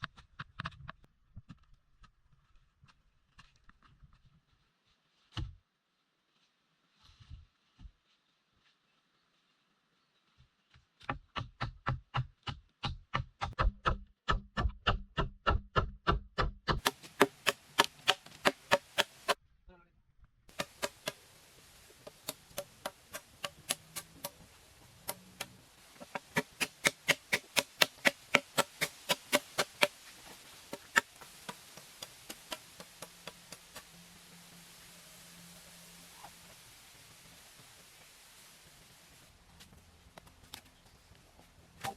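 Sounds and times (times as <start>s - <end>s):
blade chopping wood: 16.1s - 19.4s, 20.5s - 21.2s, 25.0s - 30.0s.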